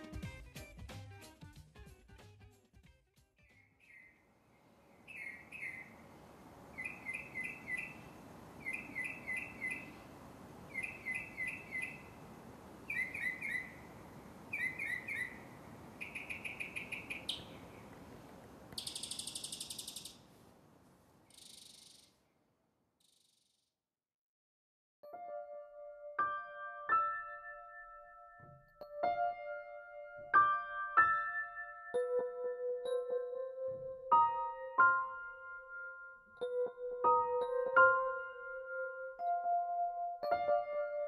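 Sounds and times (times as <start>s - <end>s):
bird chirping: 3.4s - 18.0s, 18.7s - 20.3s, 21.2s - 22.4s, 23.0s - 23.6s
low hiss: 4.3s - 22.4s
bird buzzing trill: 18.8s - 20.3s.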